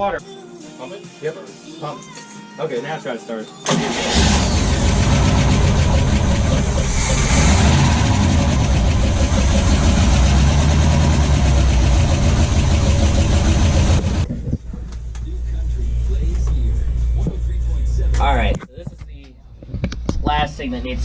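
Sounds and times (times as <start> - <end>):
boat engine running: 4.0 - 14.9.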